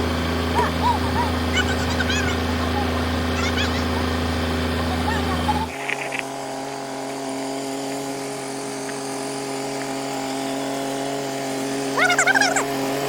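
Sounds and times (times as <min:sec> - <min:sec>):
tractor diesel engine humming: 0:00.0 - 0:06.2.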